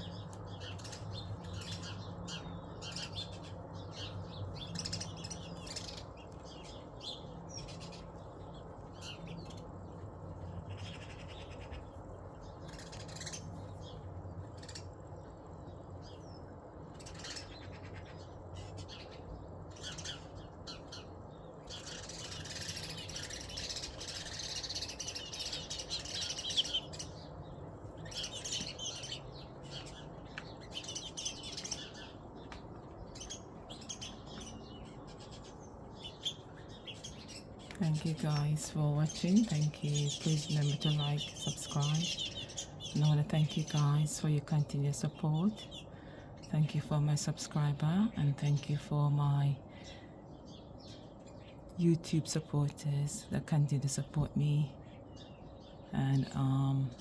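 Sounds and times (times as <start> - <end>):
birds chirping and calling: 0.0 - 57.0
low steady hum: 0.0 - 57.0.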